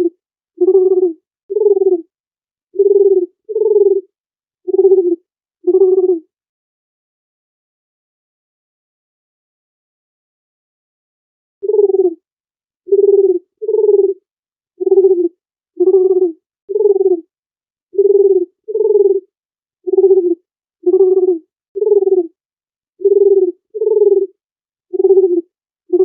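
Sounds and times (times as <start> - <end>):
dove cooing: 0.0 - 2.1, 2.8 - 4.1, 4.7 - 6.2, 11.6 - 12.2, 12.9 - 14.2, 14.8 - 17.3, 18.0 - 19.3, 19.9 - 22.4, 23.0 - 26.0.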